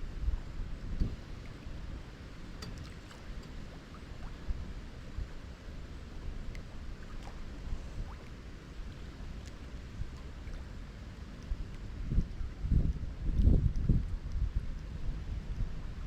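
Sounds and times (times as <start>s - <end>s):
wind buffeting microphone: 0.0s - 4.8s, 11.5s - 16.0s
faint ticks: 11.3s - 15.7s.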